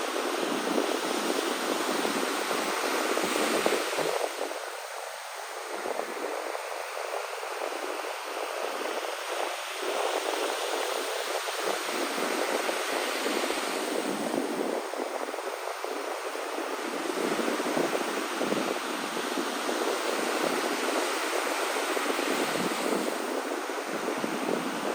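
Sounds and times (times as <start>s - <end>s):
sea waves rushing: 0.0s - 24.9s.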